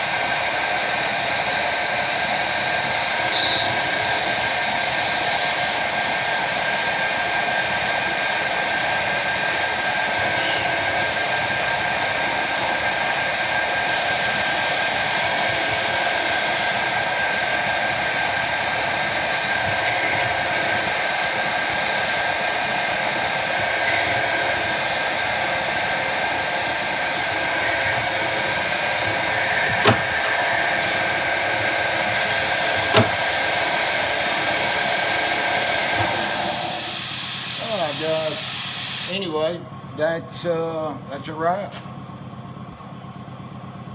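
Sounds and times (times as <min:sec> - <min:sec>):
lathe whirring with constant whine: 0:00.0 - 0:43.9
sharp clicks: 0:27.6 - 0:31.0.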